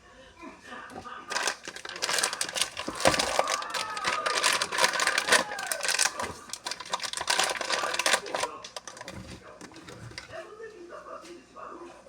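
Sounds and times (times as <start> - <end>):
hard objects clicking and clattering: 0.9 - 10.4.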